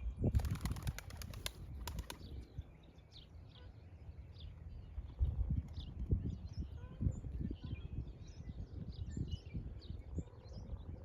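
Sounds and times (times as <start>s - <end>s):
small birds chirping: 0.2s - 11.0s
pigeon wings flapping: 0.4s - 2.3s.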